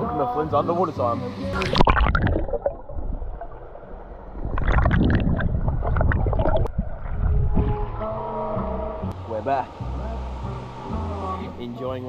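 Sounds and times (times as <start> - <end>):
muffled underwater bubbling: 1.5 - 7.8.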